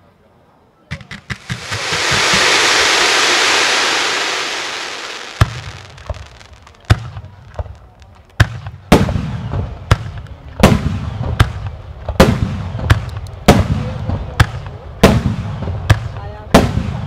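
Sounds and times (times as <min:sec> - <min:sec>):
fireworks bursting: 0:00.9 - 0:08.6.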